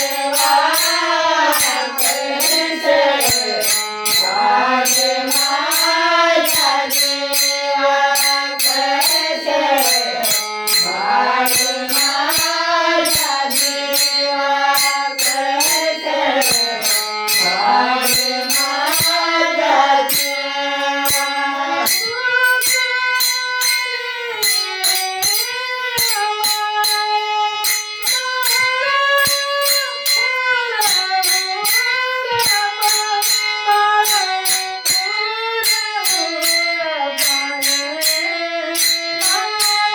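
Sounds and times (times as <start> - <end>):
woman singing: 0.0 - 23.3
jingling percussion: 0.0 - 39.9.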